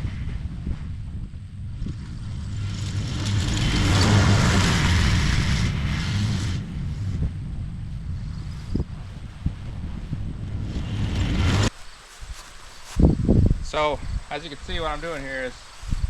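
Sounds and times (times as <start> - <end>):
lawn mower cutting grass: 1.7 - 7.4, 10.4 - 11.7.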